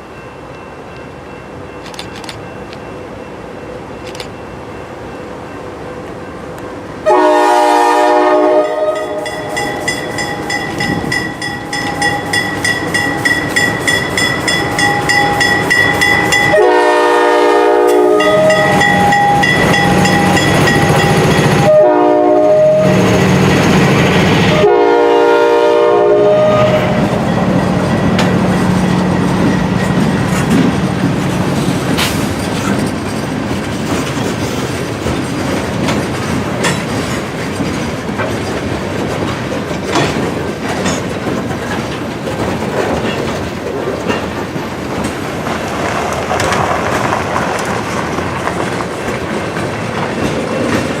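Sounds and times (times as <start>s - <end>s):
locomotive air horn blasts: 7.0s - 9.6s, 16.5s - 19.5s, 21.6s - 23.1s, 24.5s - 27.2s
wheels clicking over rail joints: 27.6s - 51.0s.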